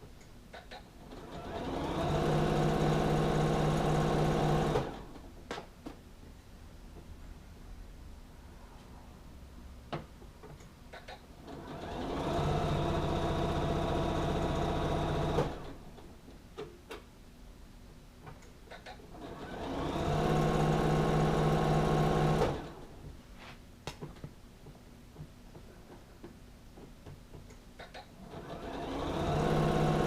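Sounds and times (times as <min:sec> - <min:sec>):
sewing machine stitching: 0:01.0 - 0:05.2, 0:11.4 - 0:15.9, 0:18.8 - 0:22.8, 0:27.8 - 0:30.0.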